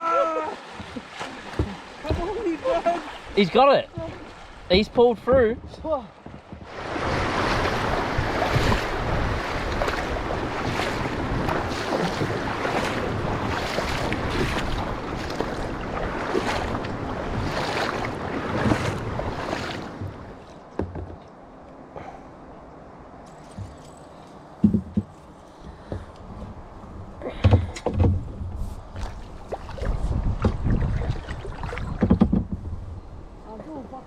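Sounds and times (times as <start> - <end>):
paddle splashes: 0.0 - 21.4, 24.6 - 32.9
small knocks: 5.2 - 6.7, 19.9 - 21.4, 24.6 - 26.5, 31.9 - 32.7
wind on microphone: 5.6 - 20.4, 25.9 - 33.6.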